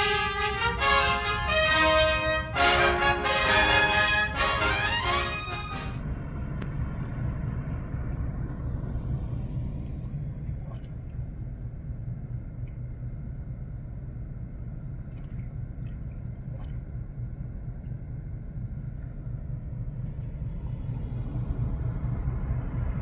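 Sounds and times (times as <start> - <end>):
brass music: 0.0 - 6.0
low rumble: 0.0 - 23.0.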